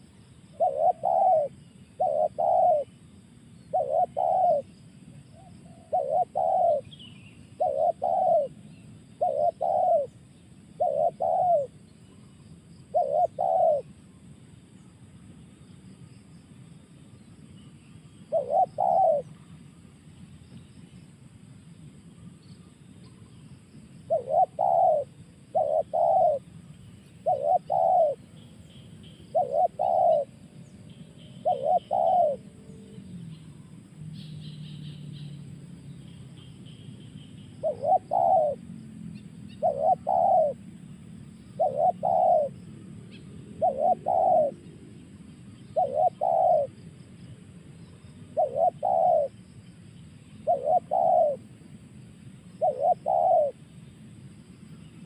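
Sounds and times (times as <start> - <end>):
dove cooing: 0.0 - 2.9, 3.7 - 4.7, 5.3 - 11.8, 12.9 - 14.0, 18.3 - 19.4, 24.1 - 26.5, 27.2 - 30.6, 31.2 - 33.8, 37.6 - 40.6, 41.6 - 45.1, 45.7 - 46.8, 48.3 - 49.4, 50.4 - 51.5, 52.6 - 53.6.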